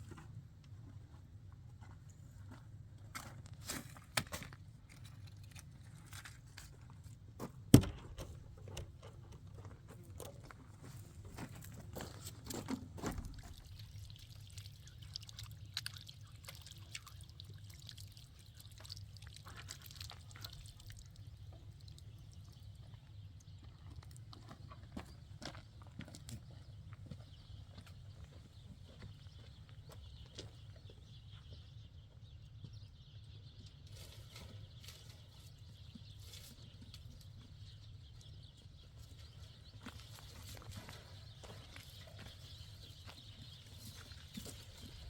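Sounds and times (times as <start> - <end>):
liquid pouring and trickling: 13.2 - 22.5.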